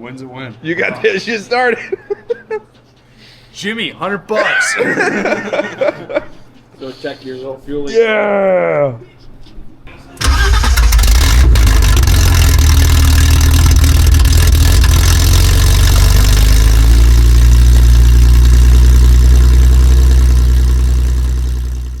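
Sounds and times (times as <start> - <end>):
car engine idling: 10.2 - 22.0.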